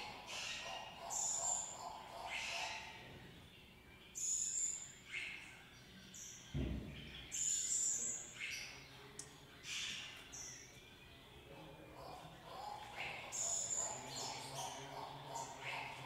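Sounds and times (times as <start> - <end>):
birds chirping: 0.0 - 16.0
low thud: 6.5 - 7.1.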